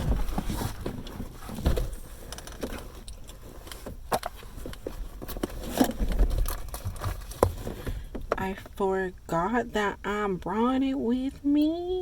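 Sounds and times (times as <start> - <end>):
handling clicks and rustles: 0.0 - 8.4.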